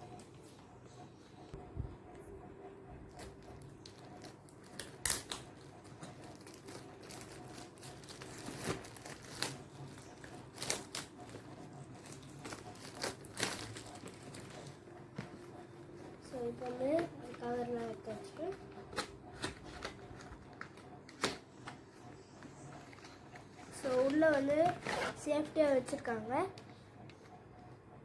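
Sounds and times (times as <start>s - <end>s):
plastic packaging crinkling: 3.8s - 14.8s.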